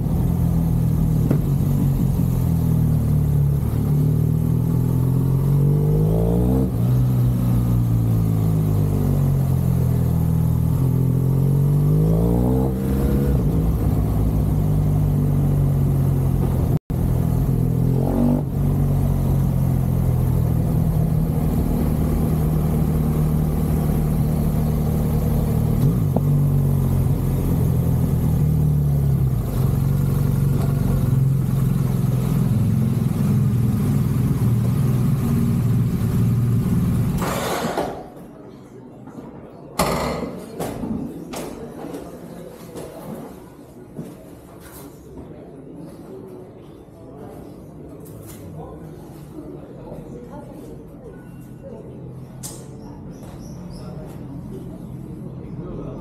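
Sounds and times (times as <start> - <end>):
motorcycle engine running: 0.0 - 37.2.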